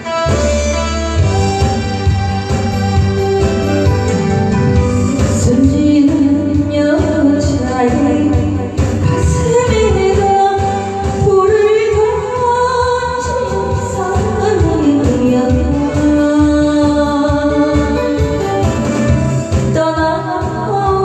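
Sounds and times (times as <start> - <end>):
band backing track: 0.0 - 21.0
woman singing: 5.0 - 21.0.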